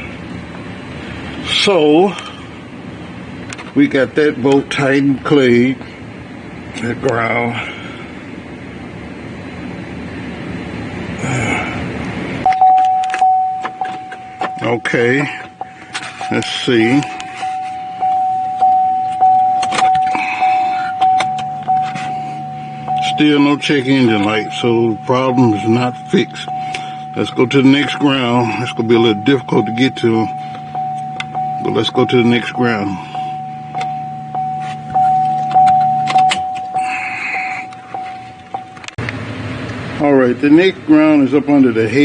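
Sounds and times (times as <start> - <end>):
low steady hum: 0.0 - 42.0
car warning chime dinging: 12.4 - 39.0.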